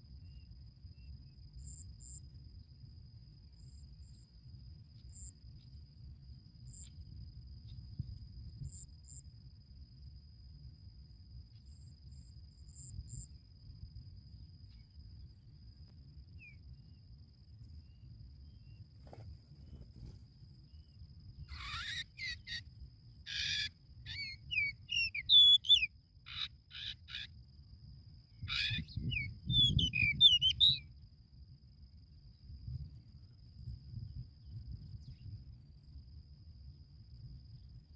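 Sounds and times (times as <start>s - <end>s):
high cricket-like tone: 0.0s - 37.9s
harsh raspy bird calls: 21.5s - 22.6s, 23.3s - 27.3s, 28.5s - 30.8s.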